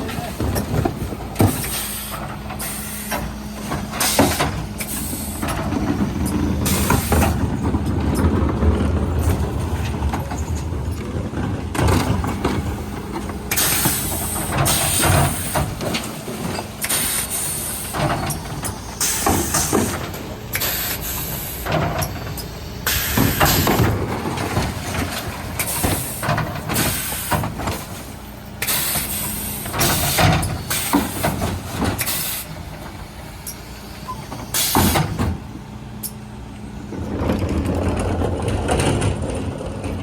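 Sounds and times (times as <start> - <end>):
truck engine drone: 0.0 - 40.0.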